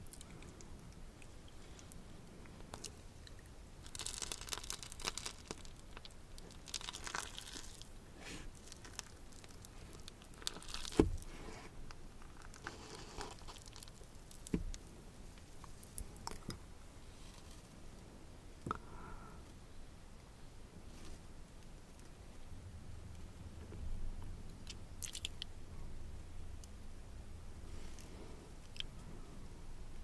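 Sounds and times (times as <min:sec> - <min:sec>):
food crunching and crinkling: 0:00.0 - 0:17.8, 0:24.6 - 0:25.5.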